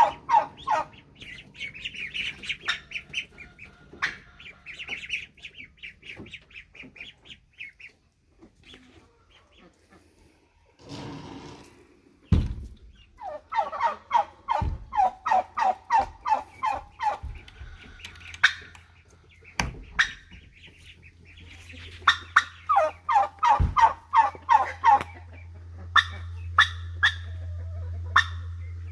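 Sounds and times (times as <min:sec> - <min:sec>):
poultry calling: 0:00.0 - 0:11.9, 0:12.9 - 0:28.9
low steady hum: 0:00.0 - 0:28.9
dull thumps: 0:12.3 - 0:12.8, 0:14.5 - 0:15.1, 0:23.4 - 0:24.0.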